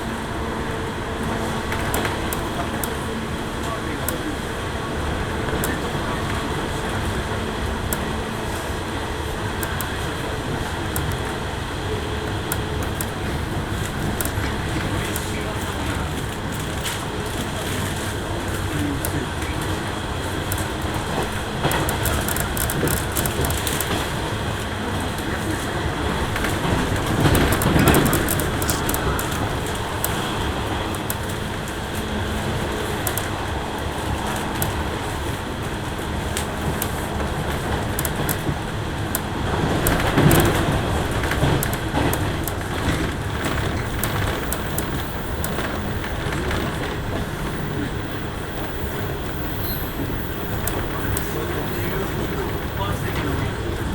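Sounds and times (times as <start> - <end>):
train wheels rumbling on rail: 0.0 - 53.9
sharp clicks and clatter: 12.2 - 24.4, 25.0 - 33.4, 36.3 - 53.6
sharp ticks: 27.0 - 31.4, 43.4 - 53.2.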